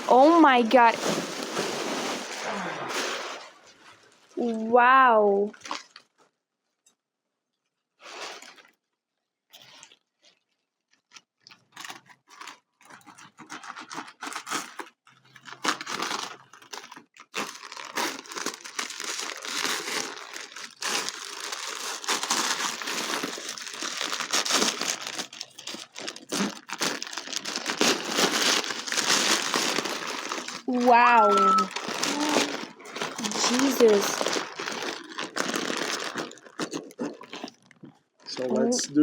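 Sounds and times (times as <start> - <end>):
paper crumpling and tearing: 0.0 - 3.7, 11.8 - 37.5.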